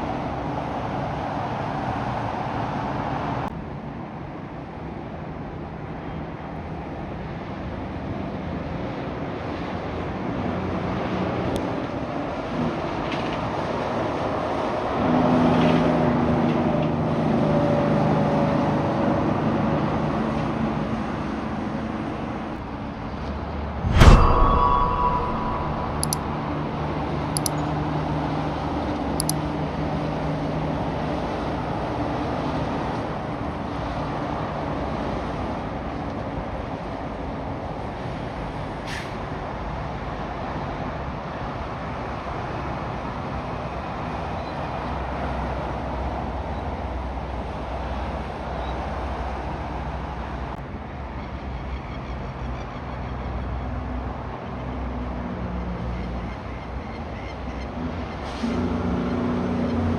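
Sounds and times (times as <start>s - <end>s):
sharp click: 23.8s - 26.8s.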